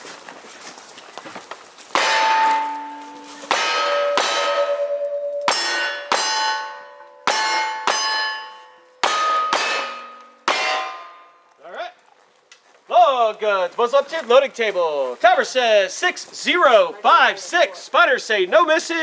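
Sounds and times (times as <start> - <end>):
steel target ringing: 2.0 - 11.5.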